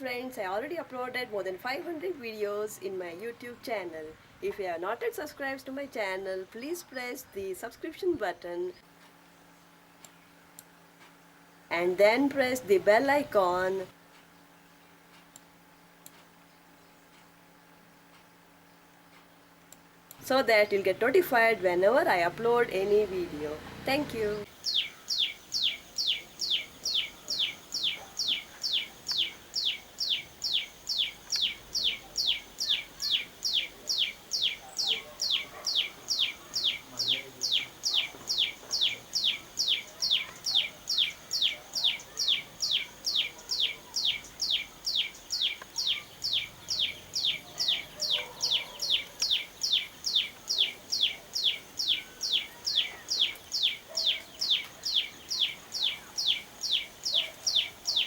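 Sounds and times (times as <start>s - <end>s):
songbird calling high note: 23.9s - 58.0s.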